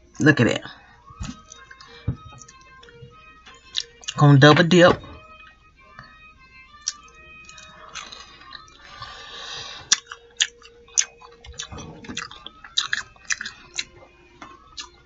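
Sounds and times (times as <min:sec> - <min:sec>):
person chewing crunchy food: 0:03.7 - 0:04.2, 0:06.8 - 0:15.0.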